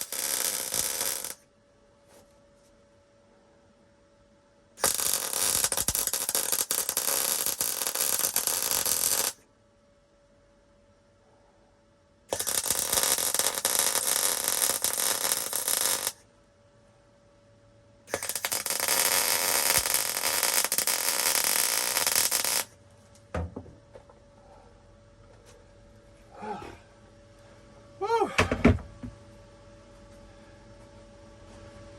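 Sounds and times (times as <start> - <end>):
welding arc crackle and sizzle: 0.0 - 1.4, 4.8 - 9.4, 12.3 - 16.2, 18.1 - 22.8.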